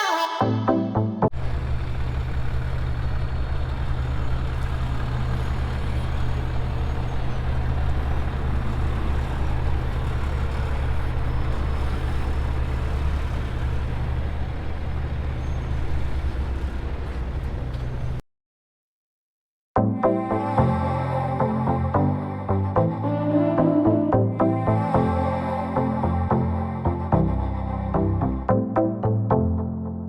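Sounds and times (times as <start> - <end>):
truck engine running: 1.3 - 18.2.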